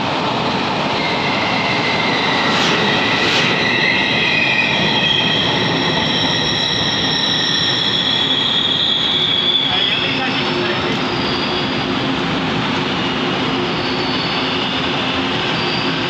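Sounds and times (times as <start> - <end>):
train wheels on track: 0.0 - 16.0
high wheel squeal: 0.9 - 12.0, 12.9 - 16.0.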